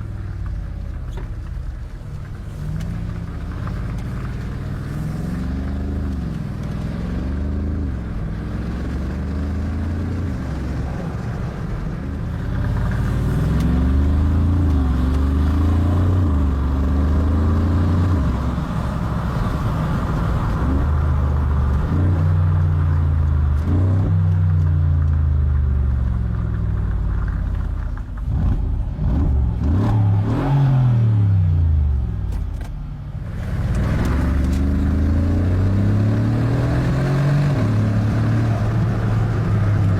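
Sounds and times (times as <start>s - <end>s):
car engine revving hard: 28.4s - 31.5s, 33.3s - 39.9s.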